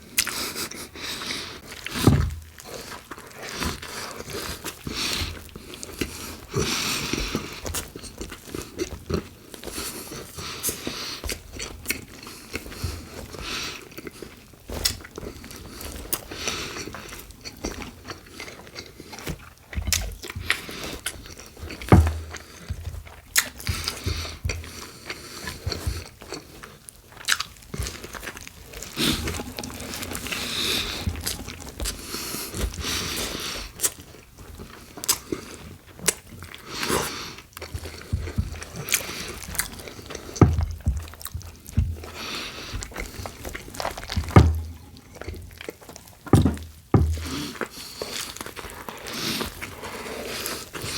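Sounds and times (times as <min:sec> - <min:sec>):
crunchy sandwich chewing: 0:00.0 - 0:50.9
sharp thump: 0:21.9 - 0:22.3.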